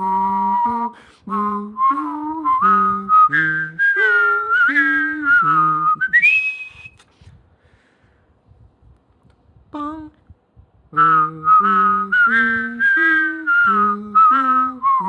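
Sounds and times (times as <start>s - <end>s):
person whistling a melody: 0.0s - 7.1s, 10.9s - 15.0s
low voiced tone: 9.7s - 10.3s.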